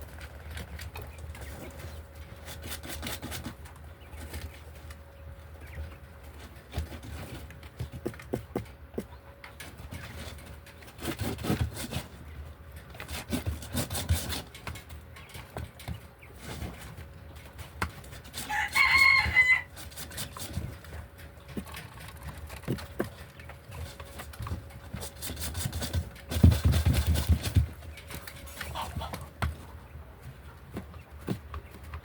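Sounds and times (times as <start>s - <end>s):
chicken call: 18.5s - 19.7s.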